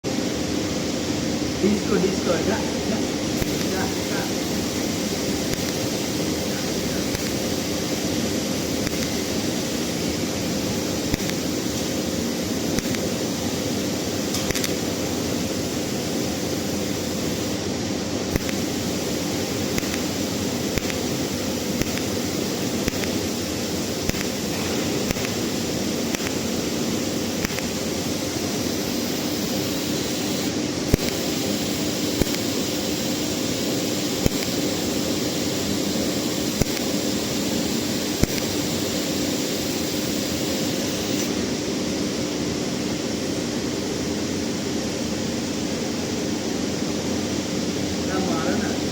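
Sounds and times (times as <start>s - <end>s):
welding arc hissing: 1.6s - 41.4s.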